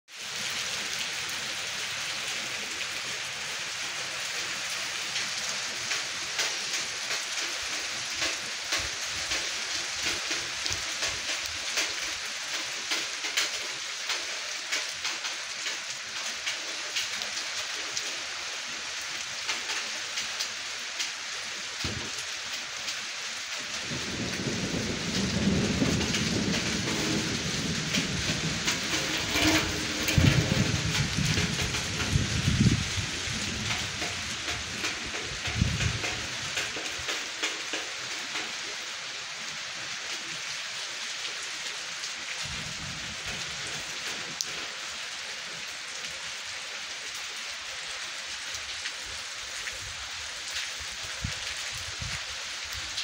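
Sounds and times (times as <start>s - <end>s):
steady rain falling: 0.1s - 53.0s
low rumble: 25.1s - 34.0s.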